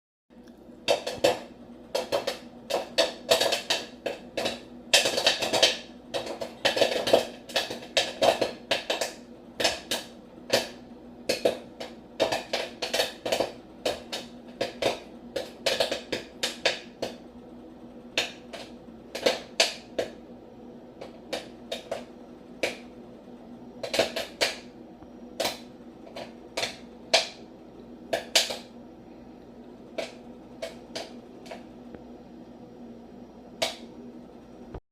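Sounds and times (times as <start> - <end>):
low hum: 16.3 - 34.8
sharp clicks and taps: 28.1 - 28.7, 30.0 - 32.0, 33.6 - 33.9.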